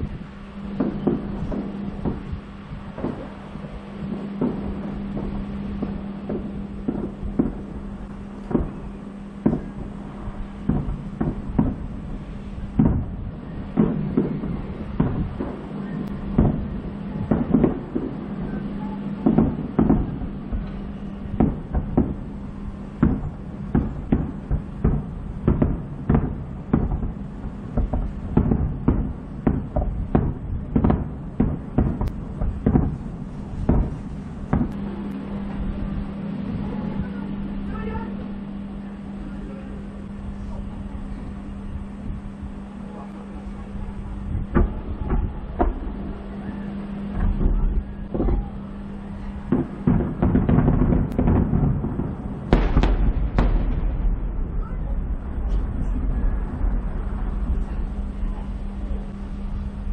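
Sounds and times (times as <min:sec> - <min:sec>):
firework shells bursting: 0:00.7 - 0:38.1, 0:49.2 - 0:54.7.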